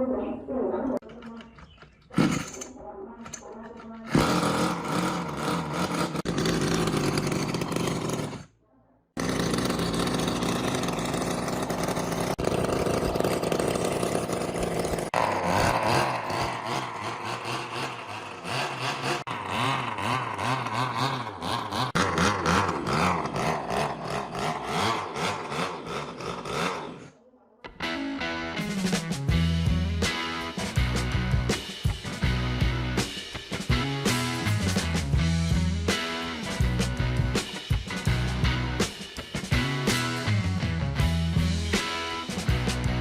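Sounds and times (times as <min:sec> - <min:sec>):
small two-stroke engine revving: 0:04.0 - 0:08.6, 0:09.2 - 0:27.2.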